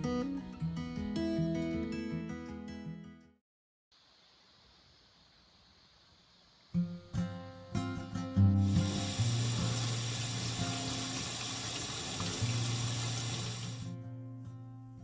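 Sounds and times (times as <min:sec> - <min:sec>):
water running from tap: 0:08.5 - 0:13.9.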